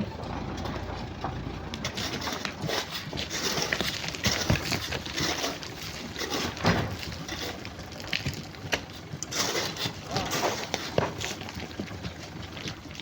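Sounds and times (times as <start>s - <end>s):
hand tools digging sand and stone: 1.9s - 11.5s.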